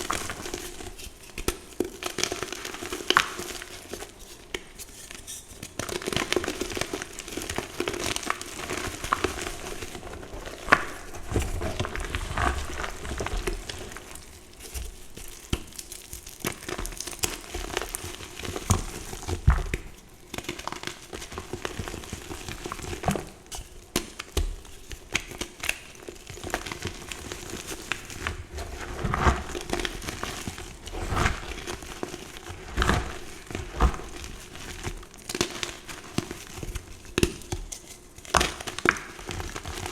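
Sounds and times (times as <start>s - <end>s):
chalk being crushed: 7.8s - 20.0s, 25.2s - 38.1s.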